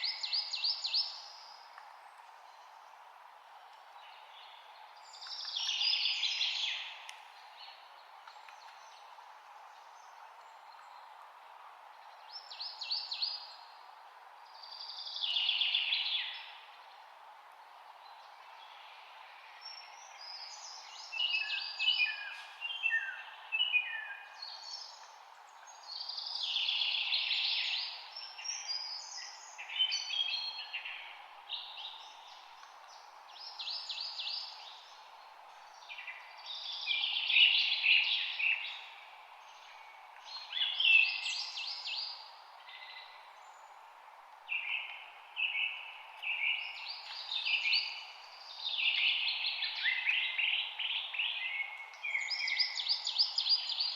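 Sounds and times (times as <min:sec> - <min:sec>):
low background hiss: 0:00.0 - 0:53.9
songbirds singing: 0:00.0 - 0:53.9.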